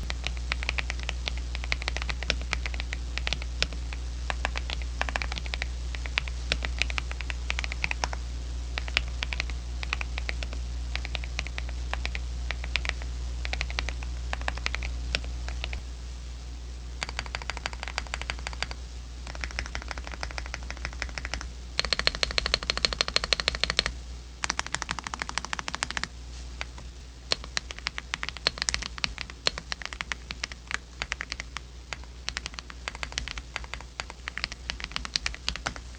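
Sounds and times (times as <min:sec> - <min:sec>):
steady low hum: 0:00.0 - 0:35.9
keyboard key clicks: 0:19.3 - 0:23.9.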